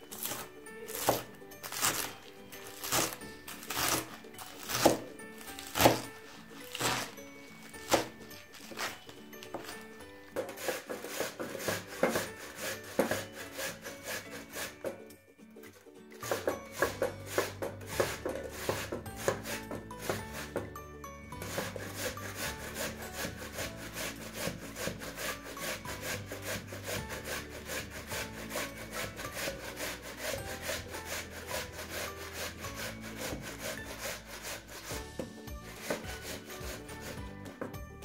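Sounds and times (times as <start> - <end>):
food scraping on box grater: 0.0 - 15.0, 16.2 - 20.6, 21.4 - 37.3.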